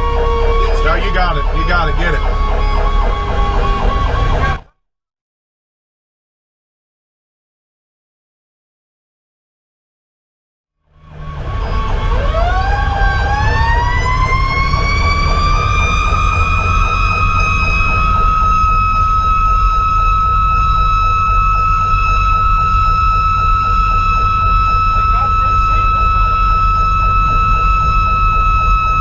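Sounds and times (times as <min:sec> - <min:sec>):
electronic siren warbling: 0:00.0 - 0:04.7, 0:11.0 - 0:29.0
fire engine rumble: 0:00.0 - 0:04.7, 0:10.9 - 0:29.0
mechanical siren wailing: 0:00.0 - 0:04.7, 0:10.9 - 0:29.0.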